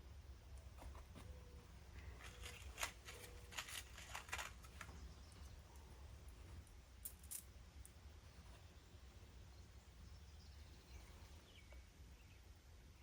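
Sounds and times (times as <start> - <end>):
faint low hum: 0.0 - 13.0
small metal hardware clinking: 6.6 - 7.5.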